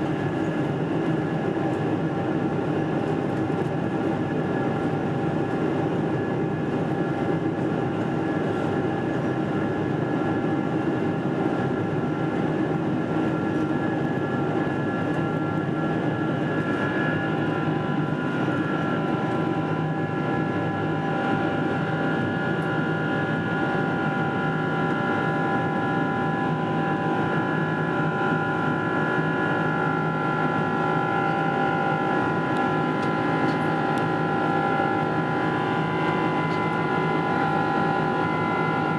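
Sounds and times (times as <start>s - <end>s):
jet engines in cabin: 0.0s - 38.9s.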